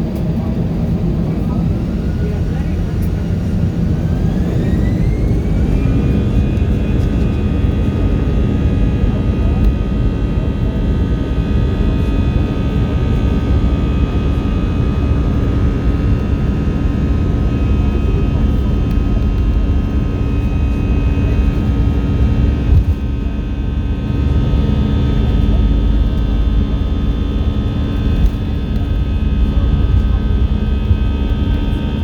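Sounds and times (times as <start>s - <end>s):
airplane cabin rumble: 0.0s - 32.0s
high whining engine tones: 0.6s - 8.1s.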